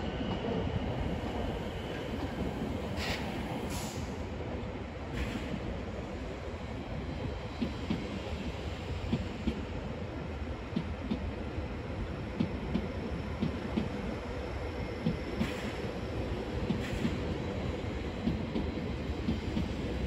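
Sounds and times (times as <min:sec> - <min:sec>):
train wheels knocking on rail joints: 0:09.0 - 0:09.6, 0:10.6 - 0:11.4, 0:12.3 - 0:14.1, 0:14.8 - 0:20.0.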